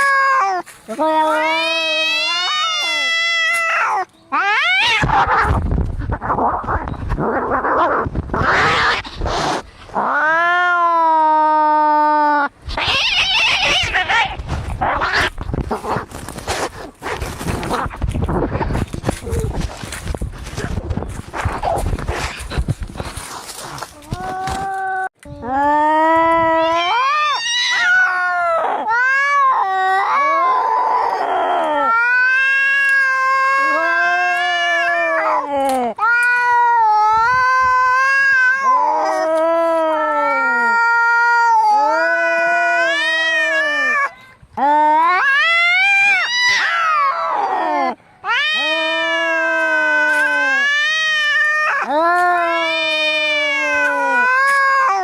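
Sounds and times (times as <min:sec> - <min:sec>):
cat yowling: 0:00.0 - 0:05.6, 0:07.3 - 0:15.4, 0:24.1 - 0:44.1, 0:44.8 - 0:55.0
cat screeching: 0:00.0 - 0:15.4, 0:26.4 - 0:44.2, 0:44.9 - 0:55.0.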